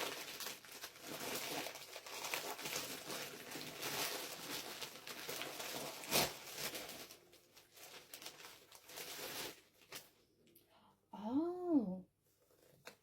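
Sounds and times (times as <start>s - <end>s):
packaging and clothing rustling: 0.0s - 10.2s.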